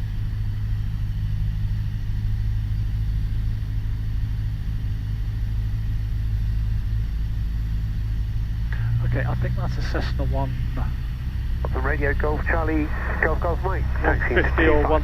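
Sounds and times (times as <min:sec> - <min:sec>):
light aircraft engine droning: 0:00.0 - 0:15.0.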